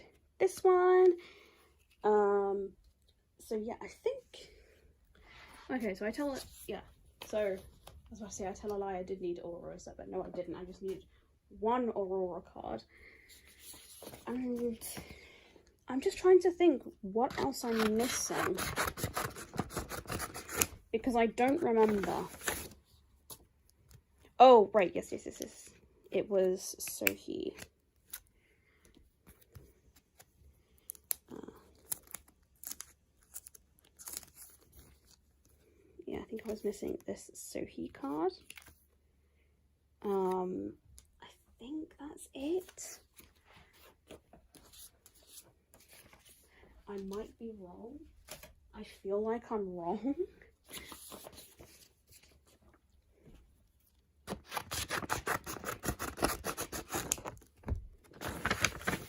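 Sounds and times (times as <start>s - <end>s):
crinkly packaging rustles: 17.3s - 24.0s, 29.2s - 35.7s, 50.5s - 52.9s, 53.8s - 59.0s.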